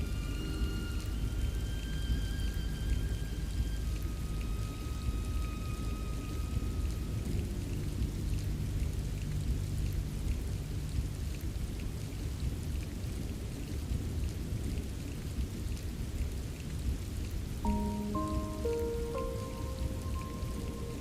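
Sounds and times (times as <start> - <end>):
soft pitched music notes: 0.0 - 12.1, 17.6 - 21.0
low rumble: 0.0 - 14.8
raindrop ticks: 0.0 - 21.0
steady rain falling: 0.0 - 21.0.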